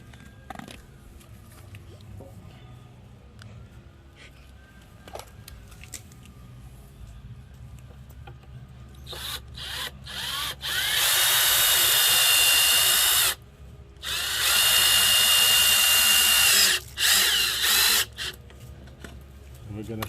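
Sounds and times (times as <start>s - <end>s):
power drill whining into wood: 9.1s - 13.4s, 14.0s - 18.4s.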